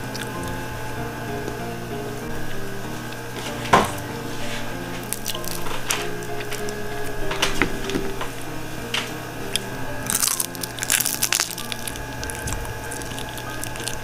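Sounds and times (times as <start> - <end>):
fried chicken crunching: 5.0 - 6.8, 9.5 - 14.0.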